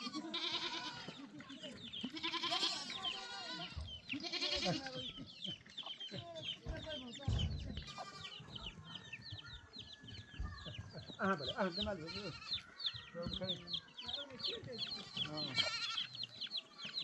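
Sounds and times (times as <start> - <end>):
goats bleating: 0.0 - 5.2, 7.8 - 8.5, 11.6 - 12.8, 14.0 - 16.4
chickens clucking: 0.0 - 17.0.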